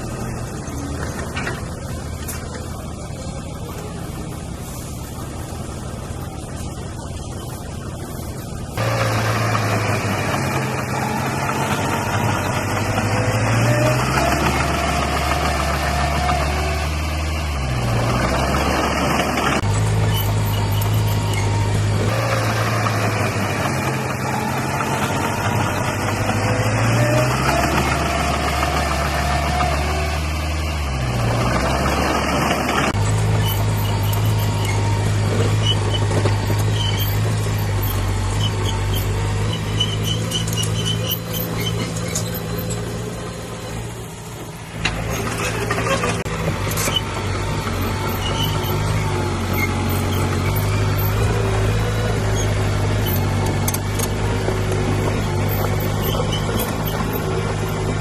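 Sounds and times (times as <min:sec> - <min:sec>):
heavy machinery diesel engine: 0:00.0 - 0:58.0
faint squeaks and clinks: 0:33.3 - 0:43.8, 0:55.2 - 0:57.9.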